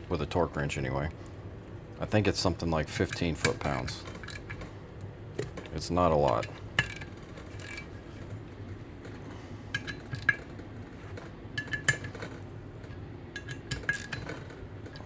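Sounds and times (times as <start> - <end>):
wrench clinking on metal: 11.6 - 15.0.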